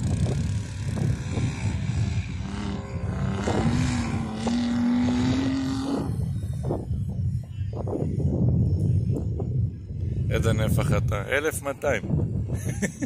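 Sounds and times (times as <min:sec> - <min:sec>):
engine revving hard: 0:00.0 - 0:06.4
low rumble: 0:00.0 - 0:11.3.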